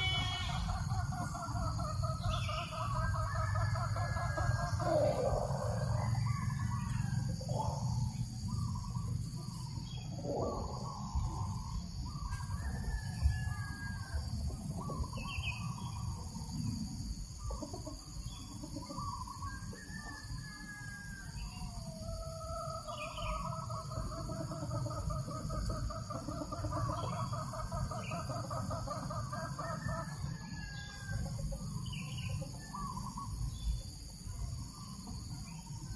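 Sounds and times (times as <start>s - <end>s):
chickens clucking: 0.0s - 12.9s, 16.9s - 19.8s, 23.1s - 35.9s
birds calling: 0.0s - 20.0s, 30.6s - 35.9s
breeze rumble on microphone: 10.0s - 12.2s.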